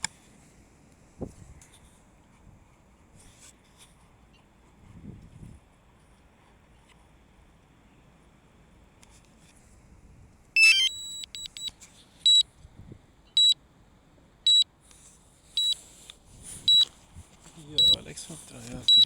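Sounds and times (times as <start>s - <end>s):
drone alarm chirping tones: 10.6s - 11.7s
high alarm beeps: 10.6s - 11.7s, 17.8s - 18.0s.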